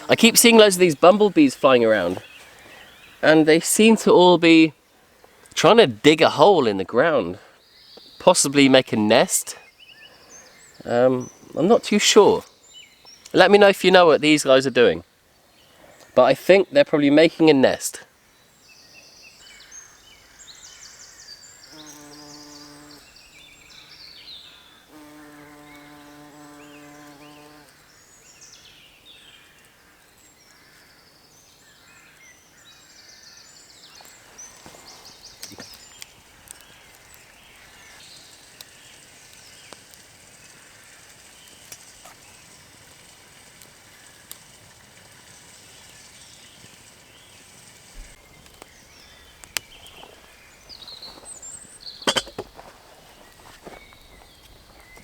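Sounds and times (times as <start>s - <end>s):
bumblebee buzzing: 21.7s - 23.5s, 24.9s - 27.8s.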